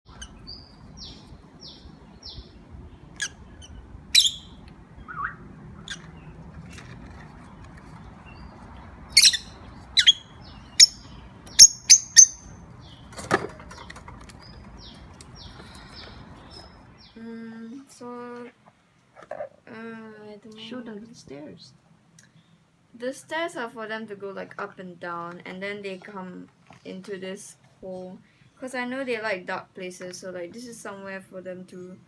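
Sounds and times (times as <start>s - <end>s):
loud sharp bird calls: 0.1s - 6.8s, 7.5s - 17.2s
soft bird chirps: 0.1s - 17.2s.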